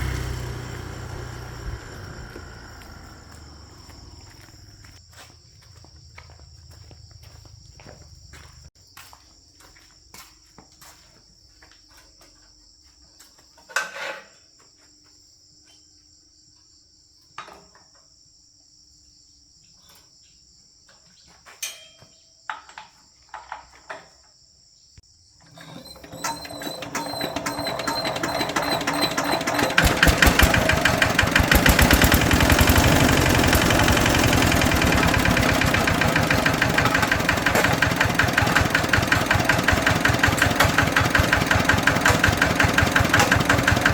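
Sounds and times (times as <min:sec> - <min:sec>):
tractor engine running: 0:00.0 - 0:05.0, 0:25.5 - 0:43.9
crickets chirping: 0:00.0 - 0:41.1.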